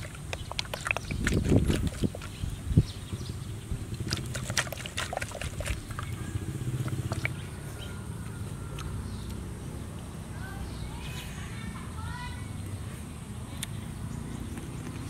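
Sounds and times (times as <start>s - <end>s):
chewing and mouth smacking: 0.0s - 2.6s, 3.8s - 7.4s, 8.7s - 9.0s.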